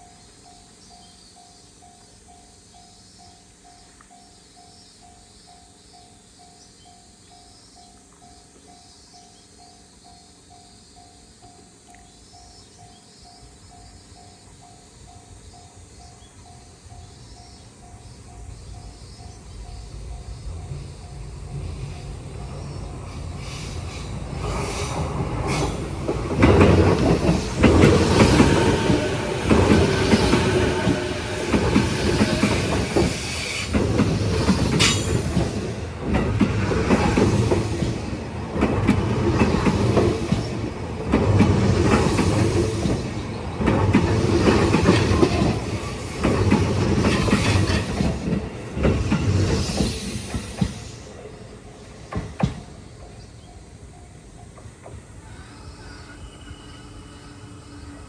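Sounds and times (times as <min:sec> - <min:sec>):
train wheels clattering over rail joints: 0:18.7 - 0:53.4.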